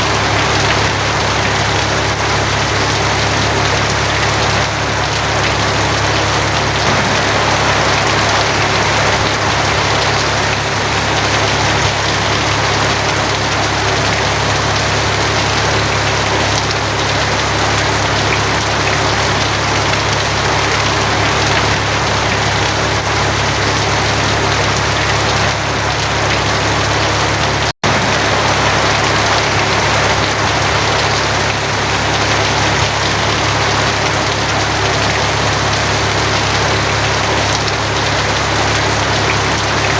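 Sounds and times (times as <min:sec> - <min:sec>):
heavy rain on a tin roof: 0:00.0 - 0:39.9
low hum: 0:06.7 - 0:12.1.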